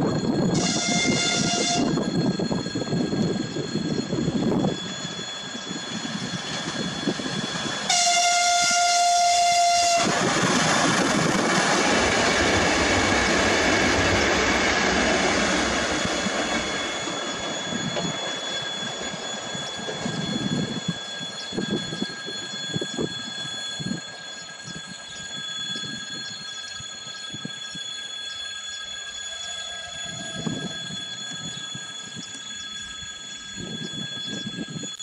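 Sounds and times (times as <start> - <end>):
train rolling past: 0.0 - 35.0
train horn blast: 0.5 - 2.0, 7.9 - 10.3.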